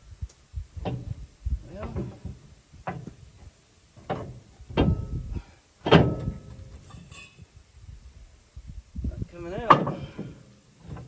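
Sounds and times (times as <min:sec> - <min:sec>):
heavy blows on metal: 0:04.0 - 0:07.0.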